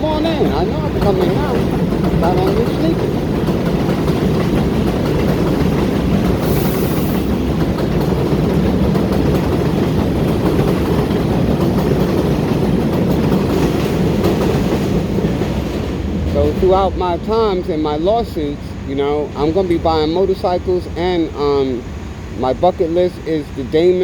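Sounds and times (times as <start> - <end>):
vehicle rumble: 15.5 - 24.0.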